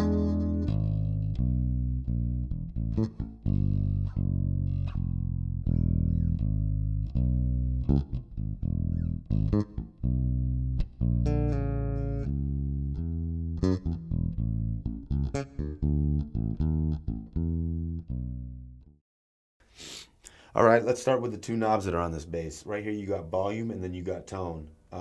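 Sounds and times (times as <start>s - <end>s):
electric bass guitar: 0.0s - 19.0s.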